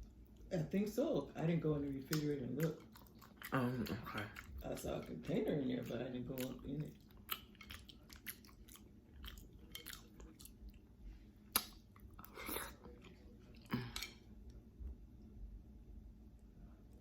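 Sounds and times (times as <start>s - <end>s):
person chewing soft food: 1.8s - 15.3s
wet mouth clicks: 11.5s - 11.8s.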